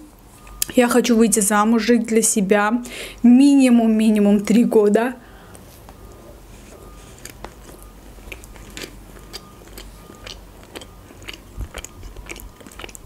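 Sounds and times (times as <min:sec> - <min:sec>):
chewing with wet mouth clicks: 0:05.5 - 0:13.0.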